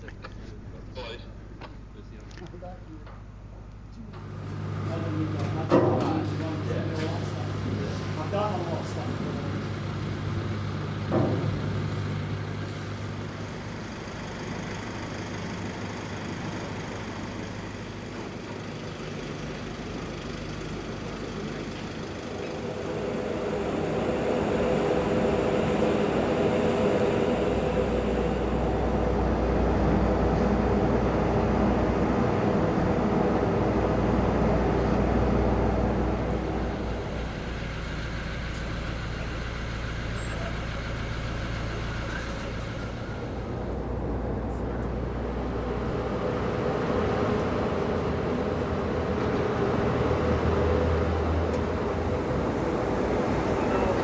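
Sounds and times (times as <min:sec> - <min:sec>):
engine running: 0:00.0 - 0:54.0
deep low hum: 0:20.0 - 0:54.0.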